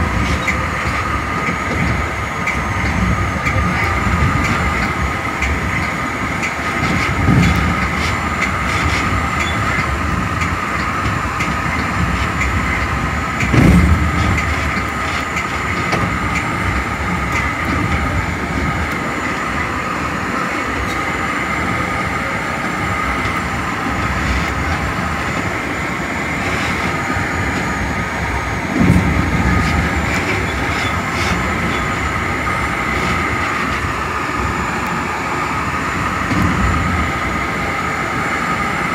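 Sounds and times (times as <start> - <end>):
constant train whine: 0.0 - 38.9
train wheels rolling on rail: 0.0 - 38.9
loud thumps: 12.0 - 19.0.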